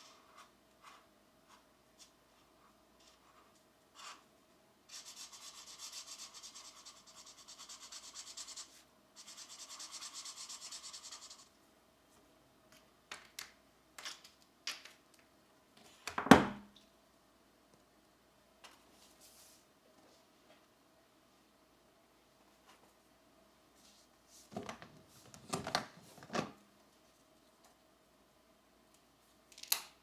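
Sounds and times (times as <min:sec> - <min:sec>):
pencil shading on paper: 0:04.9 - 0:11.5.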